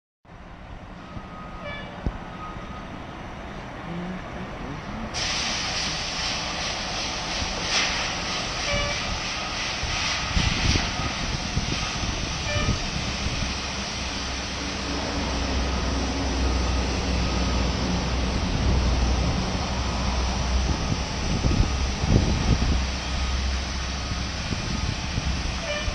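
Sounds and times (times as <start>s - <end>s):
fire engine rumbling: 0.3s - 25.9s
steady hiss: 5.1s - 15.0s.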